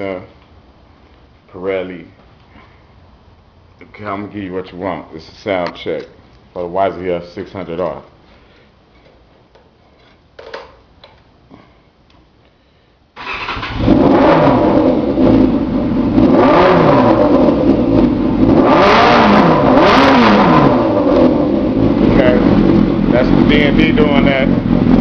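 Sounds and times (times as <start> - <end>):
motorcycle engine revving: 13.2 - 25.0.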